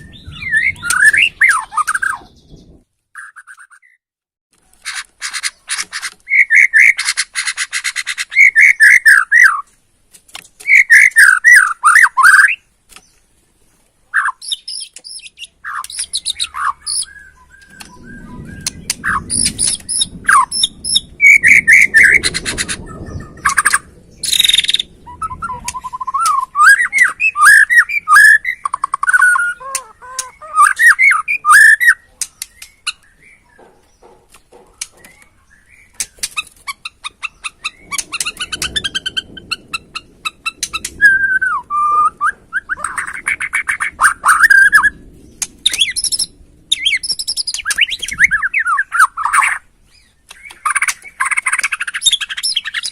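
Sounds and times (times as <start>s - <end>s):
songbird whistling and chattering: 0.0s - 4.0s, 4.9s - 9.7s, 10.6s - 12.7s, 14.2s - 52.9s
faint low rumble: 16.3s - 31.3s.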